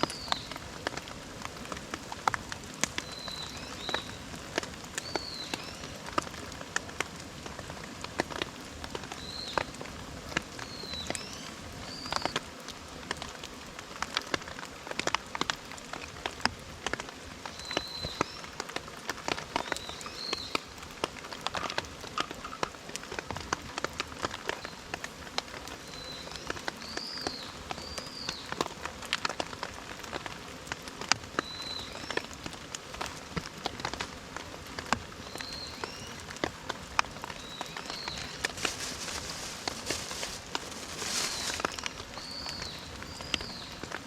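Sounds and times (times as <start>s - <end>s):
rain drops pattering: 0.0s - 44.0s
bird chirping: 37.4s - 40.0s.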